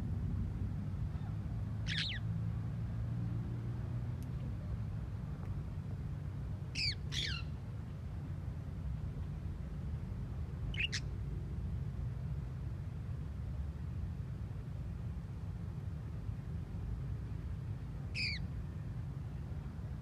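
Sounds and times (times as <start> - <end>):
steady low rumble: 0.0 - 3.1
parrots squawking: 1.9 - 2.2.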